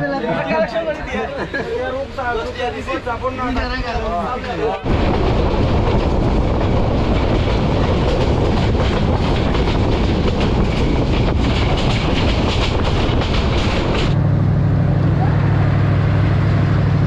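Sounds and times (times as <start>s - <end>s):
train wheels rumbling: 1.9s - 17.0s
train clicks and rattles: 4.9s - 14.2s.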